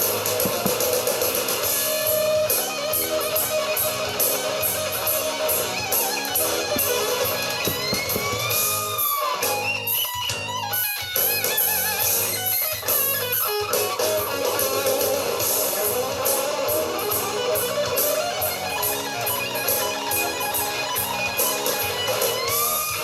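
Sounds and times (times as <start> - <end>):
steady drum beat: 0.0 - 9.6
bass guitar: 0.0 - 23.0
distorted electric guitar lead: 0.0 - 23.0.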